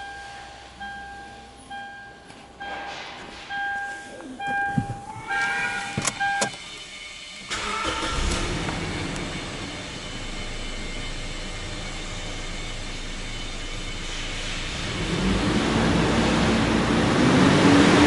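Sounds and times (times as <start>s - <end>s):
car warning chime beeping: 0.0s - 8.4s.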